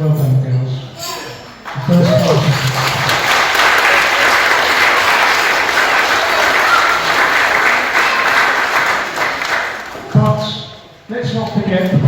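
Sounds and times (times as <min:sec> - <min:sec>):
guests applauding: 0:01.6 - 0:10.2.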